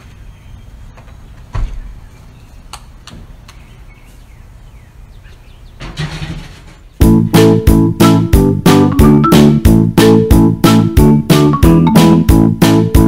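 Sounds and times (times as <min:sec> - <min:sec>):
metallic knocks and clanks: 0:05.8 - 0:07.0.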